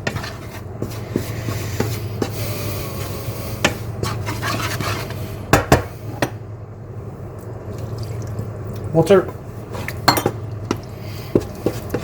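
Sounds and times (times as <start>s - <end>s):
utensil scraping food in a pan: 0.0s - 5.5s, 10.7s - 12.0s.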